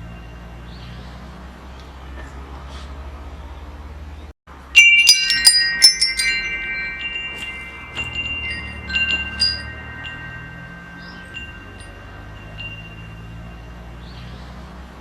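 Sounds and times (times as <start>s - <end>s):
metal wind chimes ringing: 0.0s - 1.2s, 4.6s - 15.0s.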